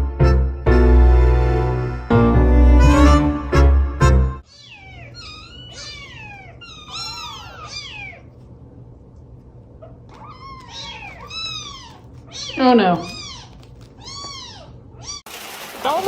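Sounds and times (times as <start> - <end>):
loud music: 0.0 - 4.4
cat meowing: 4.4 - 8.4, 9.8 - 15.2.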